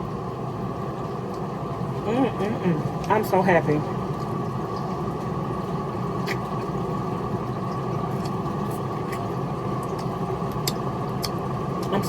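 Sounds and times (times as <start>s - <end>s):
eating clicks and smacks: 6.2s - 6.8s, 8.1s - 11.9s.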